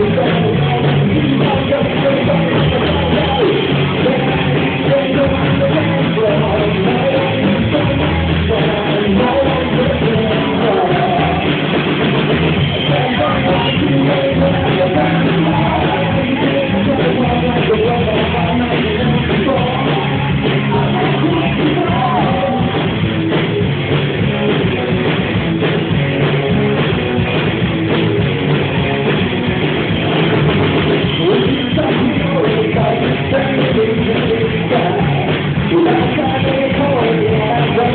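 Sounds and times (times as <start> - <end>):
person singing: 0.0 - 11.8, 12.6 - 23.6, 31.0 - 37.9
live rock band playing: 0.0 - 37.9.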